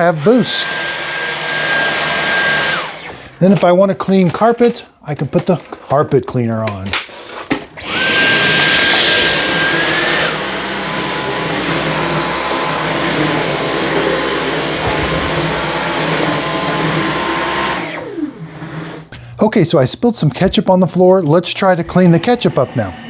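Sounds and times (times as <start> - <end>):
vacuum motor whining: 0.0 - 3.7, 7.8 - 19.1.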